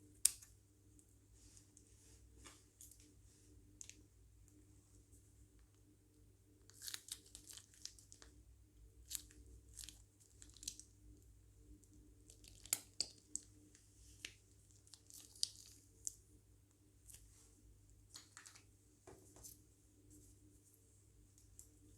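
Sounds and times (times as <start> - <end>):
slime crinkling and popping: 12.2 - 13.5, 14.2 - 16.2.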